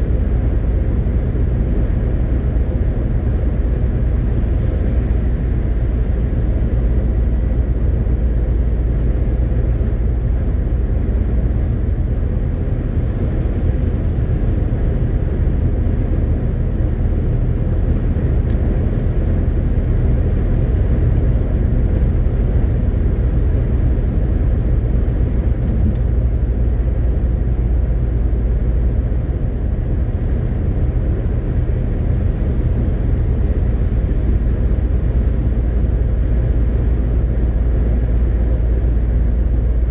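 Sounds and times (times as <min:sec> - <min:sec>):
diesel lorry engine drone: 0:00.0 - 0:39.9
road noise rumble: 0:00.0 - 0:39.9.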